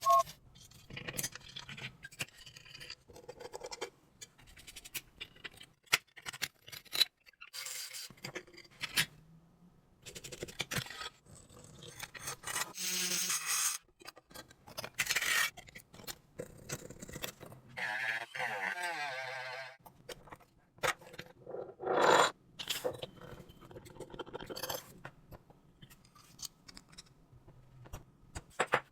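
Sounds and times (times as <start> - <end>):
clicks and knocks of handled parts: 0.6 - 7.4, 22.6 - 28.9.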